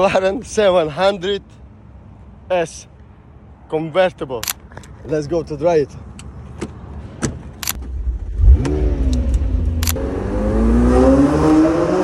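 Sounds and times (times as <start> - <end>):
sharp clicks: 7.6 - 8.0, 8.6 - 10.0
car engine revving: 7.9 - 12.0.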